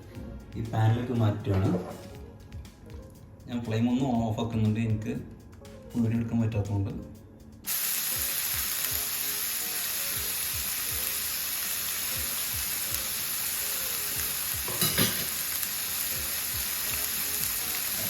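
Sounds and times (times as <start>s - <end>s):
chicken sizzling in a pan: 7.7s - 18.0s.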